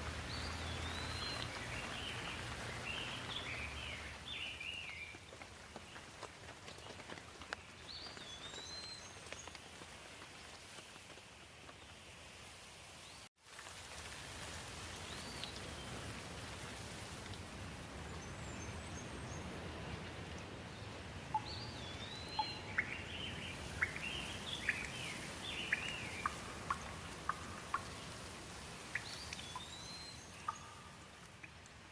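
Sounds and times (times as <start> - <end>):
birds calling: 0.0 - 5.0, 21.3 - 28.2
steady rain falling: 0.0 - 31.9.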